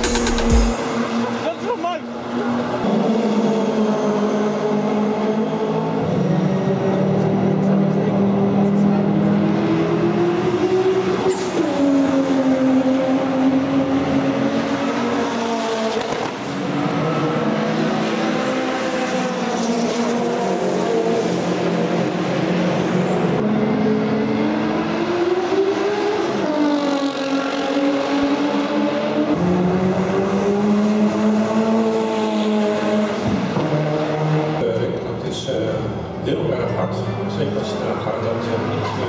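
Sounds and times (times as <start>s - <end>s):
race car engine running hard: 0.0s - 39.0s.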